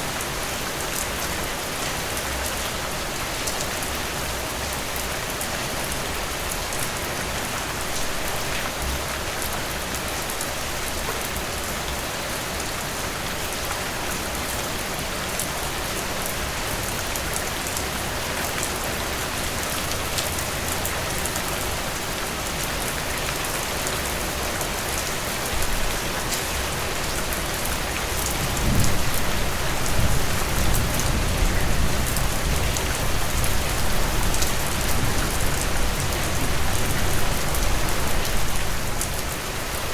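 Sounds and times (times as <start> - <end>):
heavy rain pouring: 0.0 - 39.9
distant thunder rumble: 28.4 - 34.1.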